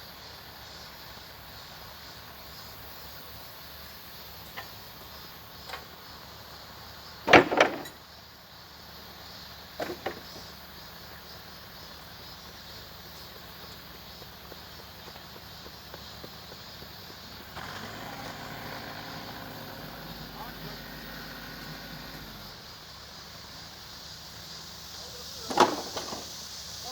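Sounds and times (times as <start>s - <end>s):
construction machinery engine running: 15.8s - 26.7s.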